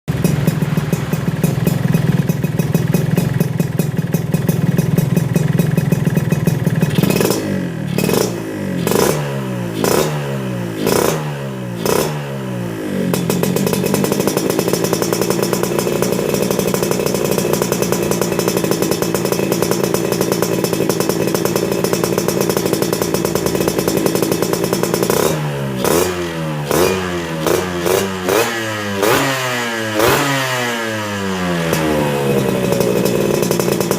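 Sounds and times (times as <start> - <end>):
motorcycle engine revving: 0.1 - 33.9.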